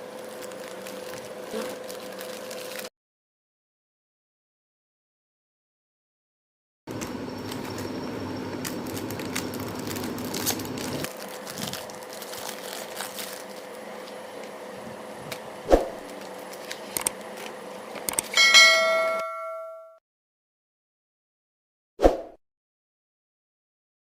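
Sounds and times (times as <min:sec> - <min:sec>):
plastic wrappers crinkling: 0:00.0 - 0:02.9, 0:07.4 - 0:14.8, 0:16.0 - 0:18.0
bell-like chime ringing: 0:18.4 - 0:20.0.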